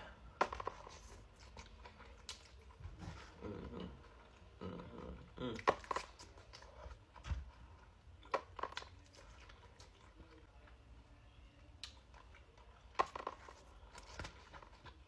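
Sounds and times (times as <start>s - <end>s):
person chewing: 0.0s - 10.5s.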